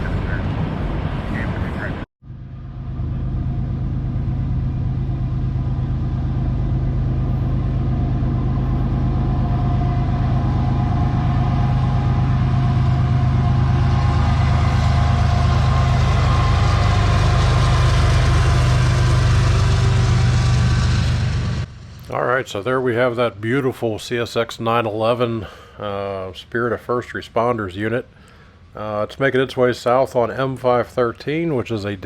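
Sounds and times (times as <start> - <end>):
locomotive engine drone: 0.0 - 24.4.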